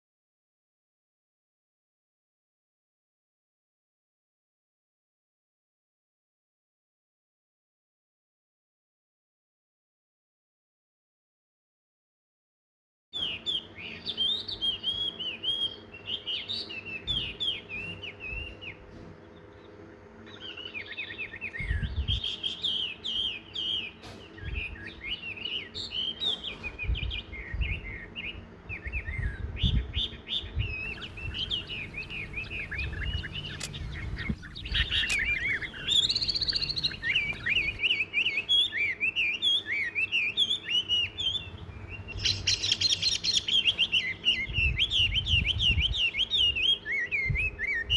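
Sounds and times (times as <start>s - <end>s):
songbirds chirping and twittering: 13.2s - 47.9s.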